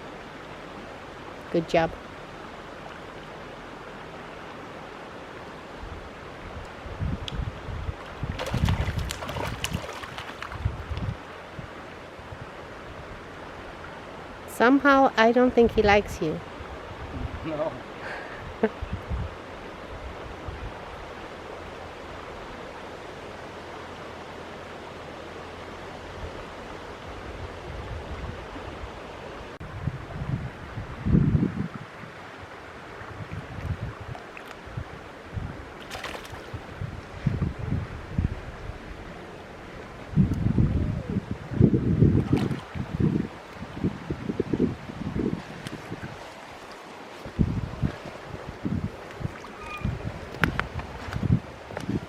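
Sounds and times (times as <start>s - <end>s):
river water rushing: 0.0s - 7.0s, 7.6s - 14.6s, 16.4s - 18.6s, 31.7s - 40.2s, 41.3s - 52.0s
low buffeting and splashy crackles: 5.2s - 14.5s, 29.6s - 52.0s
wind rumble on microphone: 5.6s - 14.4s, 15.5s - 22.6s, 25.9s - 52.0s.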